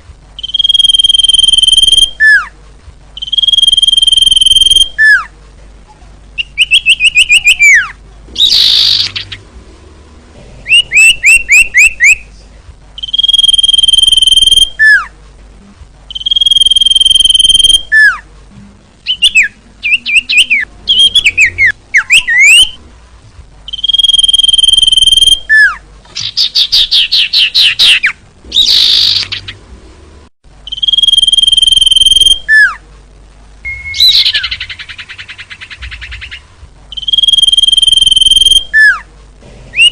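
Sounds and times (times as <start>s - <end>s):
bird whistling and chattering: 0.4s - 2.5s, 3.2s - 5.3s, 6.4s - 9.4s, 10.6s - 12.3s, 13.0s - 15.1s, 16.1s - 18.2s, 19.0s - 22.8s, 23.7s - 29.6s, 30.7s - 32.8s, 33.7s - 39.0s.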